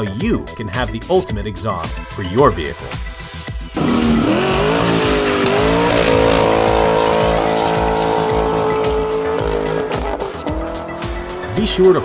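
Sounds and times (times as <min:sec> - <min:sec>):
music: 0:00.0 - 0:12.0
car engine revving: 0:03.7 - 0:11.6.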